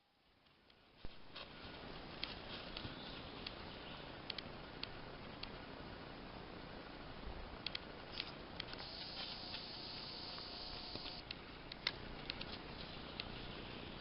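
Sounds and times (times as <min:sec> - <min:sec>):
steady low hiss: 0:00.0 - 0:14.0
higher hiss: 0:08.8 - 0:11.2.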